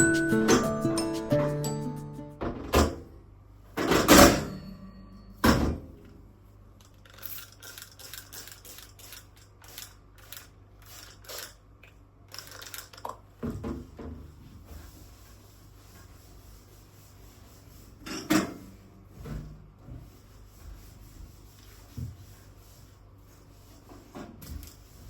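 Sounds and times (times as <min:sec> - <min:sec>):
dishes and utensils clattering: 0:03.8 - 0:05.8.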